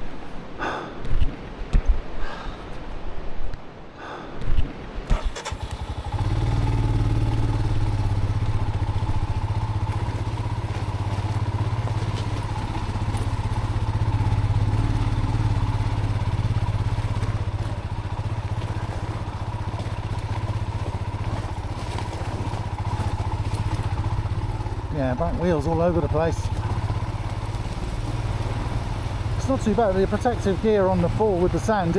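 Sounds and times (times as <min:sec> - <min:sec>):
motorcycle engine idling: 0:05.1 - 0:31.9.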